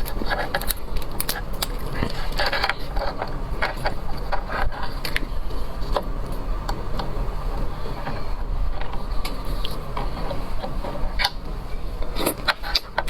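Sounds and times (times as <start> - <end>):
seafood clicks and crackles: 0.0 - 7.2
steady low hum: 0.0 - 13.0.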